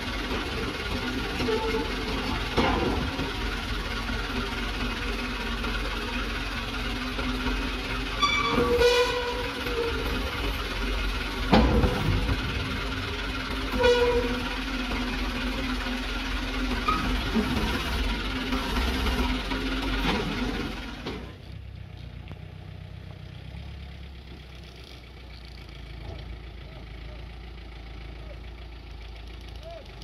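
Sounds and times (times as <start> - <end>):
truck knocks and clanks: 0.0 - 22.4
diesel truck engine running: 0.0 - 30.0
short high-pitched squeal: 8.1 - 10.2, 13.6 - 14.6.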